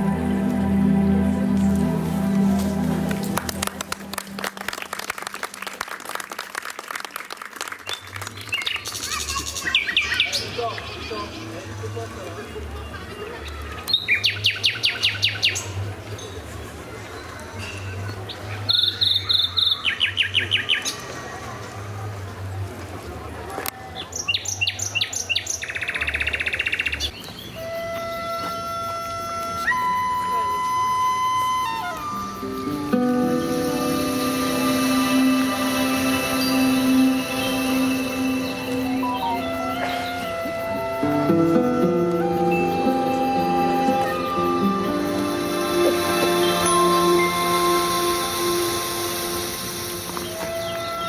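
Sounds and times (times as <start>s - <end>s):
held music notes: 0.0s - 5.8s, 27.6s - 51.0s
audience clapping: 2.7s - 9.2s.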